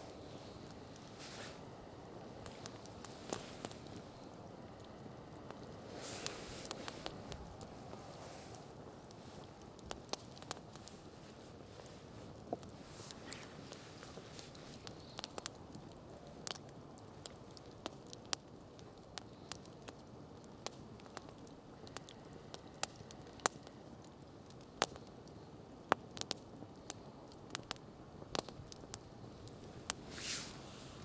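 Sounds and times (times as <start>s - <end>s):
campfire crackling and popping: 0.0s - 31.0s
low fire hiss: 0.0s - 31.0s.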